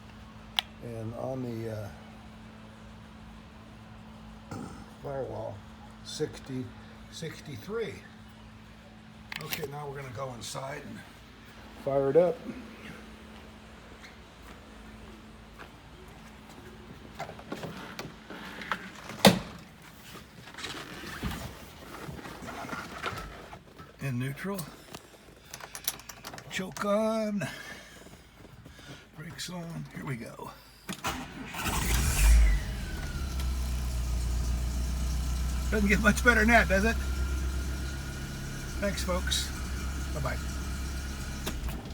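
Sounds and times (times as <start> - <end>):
light clicks and rustling: 24.6 - 27.0.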